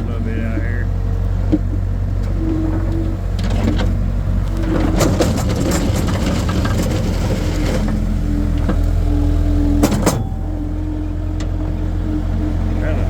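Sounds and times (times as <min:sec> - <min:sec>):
skid steer engine running: 0:00.0 - 0:13.0
bucket scraping through gravel: 0:04.4 - 0:08.5.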